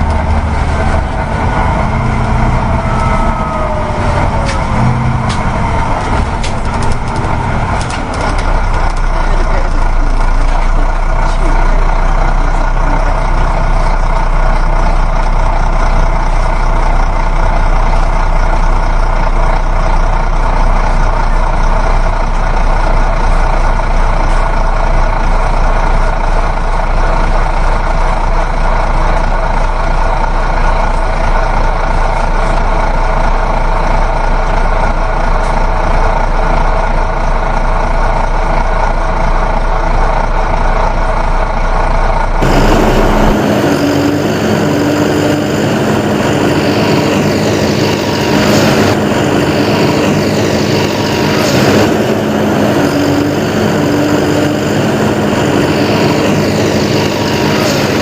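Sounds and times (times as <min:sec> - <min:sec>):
constant low hum: 0:00.0 - 0:19.4, 0:42.4 - 0:58.0
heavy vehicle engine running: 0:00.0 - 0:58.0.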